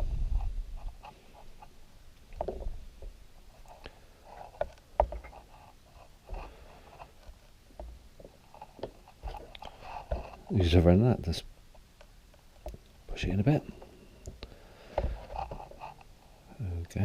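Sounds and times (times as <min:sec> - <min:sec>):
light rubbing: 0:02.4 - 0:11.4.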